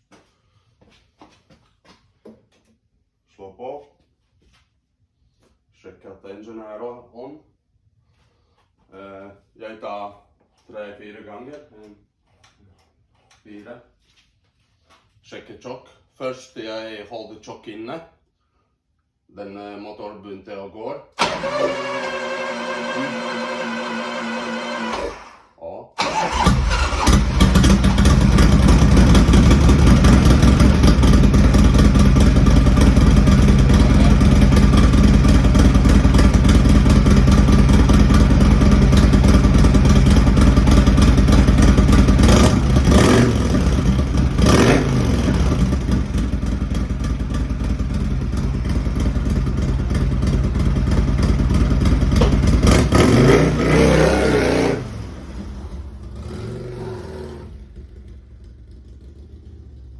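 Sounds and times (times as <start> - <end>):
engine throttle revs: 21.2 - 25.4, 26.0 - 47.2, 48.2 - 58.8
motorcycle engine running: 26.1 - 59.9.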